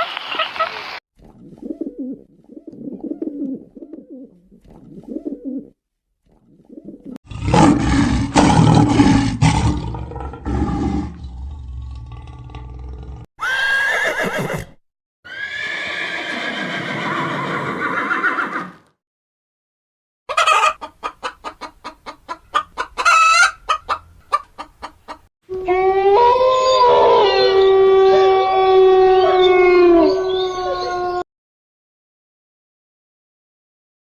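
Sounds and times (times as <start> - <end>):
chicken clucks: 20.3 - 25.3
animal calls: 25.7 - 31.2.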